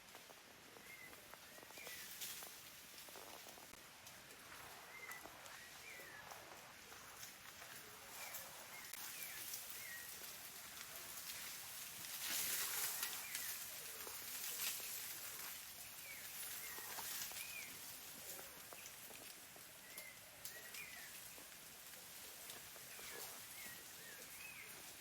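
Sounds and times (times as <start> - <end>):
bird chirps: 4.8 - 10.3.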